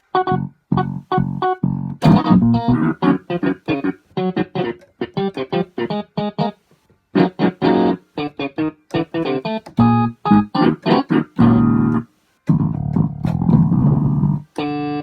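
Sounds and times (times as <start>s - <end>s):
electronic keyboard staccato notes: 0.0s - 6.6s, 7.2s - 15.0s.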